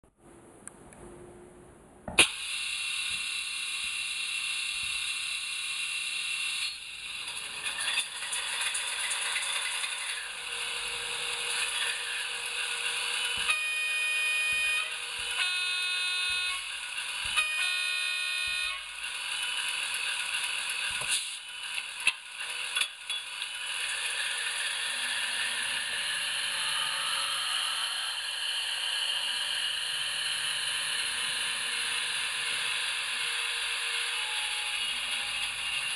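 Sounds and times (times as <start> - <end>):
diesel engine running on small speaker: 9.4 - 22.8
train horn blasts: 13.4 - 18.9.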